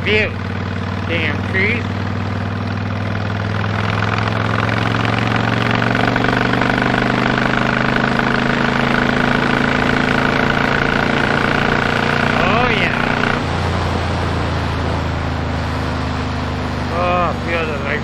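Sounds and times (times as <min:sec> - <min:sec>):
motorcycle engine running: 0:00.0 - 0:18.0
road noise: 0:00.0 - 0:18.0.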